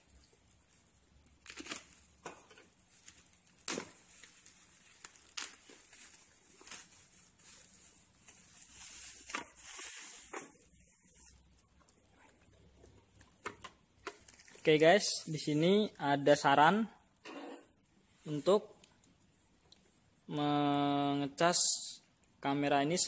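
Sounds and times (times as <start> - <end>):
bubble wrap crackling and snapping: 0.0 - 15.0
plastic wrap crinkling: 0.0 - 15.8
utility knife cutting bubble wrap: 1.4 - 7.2.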